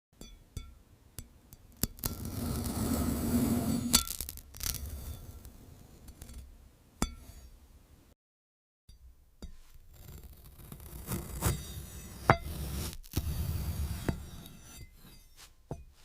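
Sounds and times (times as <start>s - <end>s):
glass clinks and taps: 0.2s - 1.7s.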